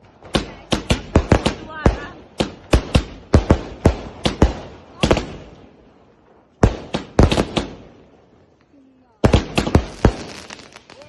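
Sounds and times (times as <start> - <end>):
firecrackers banging: 9.1 - 11.0.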